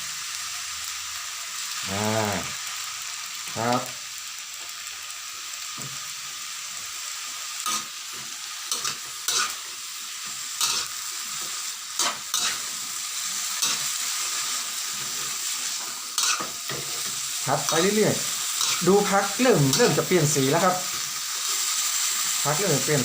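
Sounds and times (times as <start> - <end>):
vegetables sizzling in hot oil: 0.0 - 23.0
spatula scraping pan: 7.6 - 9.6, 10.6 - 12.7, 13.6 - 20.4.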